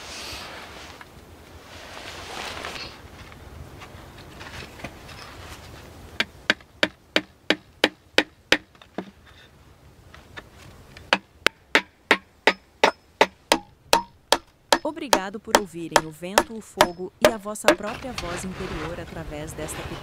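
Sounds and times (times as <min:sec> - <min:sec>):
hand tool striking wood: 0:06.2 - 0:09.2, 0:11.1 - 0:18.0.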